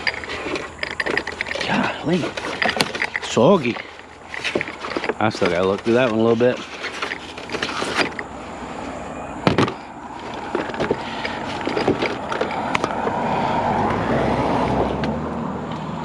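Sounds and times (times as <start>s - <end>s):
items knocking and clicking: 0.0s - 8.3s, 9.4s - 13.2s
steady rustling: 0.0s - 13.6s.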